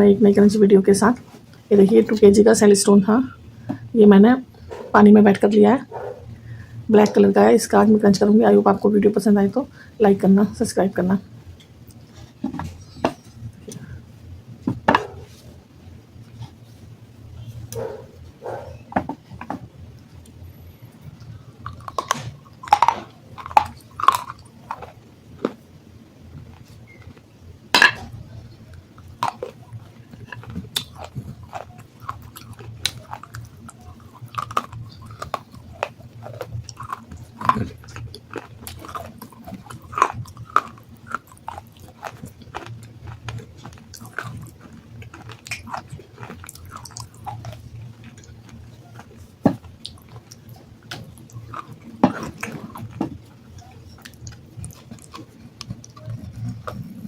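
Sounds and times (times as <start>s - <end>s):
chewing gritty stone crunches: 17.7s - 20.4s, 21.1s - 25.6s, 26.4s - 57.0s.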